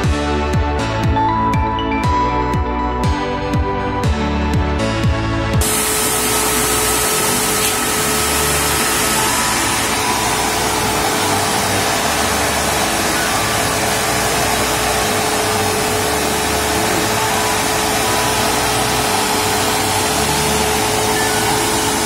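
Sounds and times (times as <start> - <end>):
vacuum cleaner running: 5.6 - 22.0.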